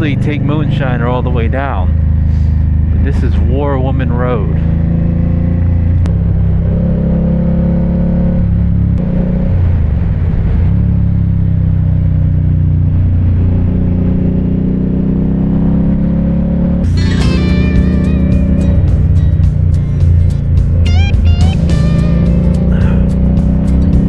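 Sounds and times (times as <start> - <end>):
motorcycle engine running: 10.9 - 24.0.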